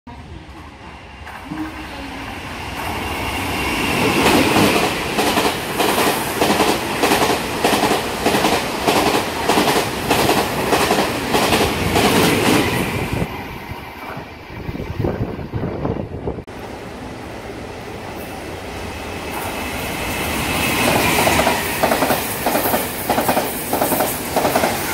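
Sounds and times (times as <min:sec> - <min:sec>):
train passing at speed: 0:00.1 - 0:24.9
train wheels clacking on rails: 0:02.7 - 0:12.9, 0:19.2 - 0:24.9.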